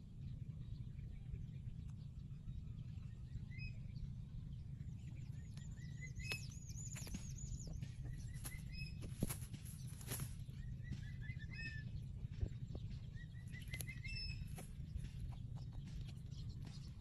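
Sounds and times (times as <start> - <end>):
birds chirping: 0.0 - 17.0
wind rumble on microphone: 0.0 - 17.0.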